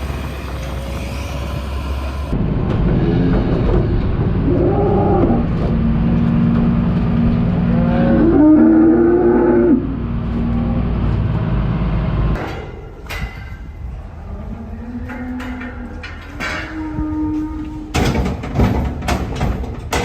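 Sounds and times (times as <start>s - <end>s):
engine running: 0.0s - 12.9s
cow mooing: 2.9s - 6.2s, 7.5s - 10.9s.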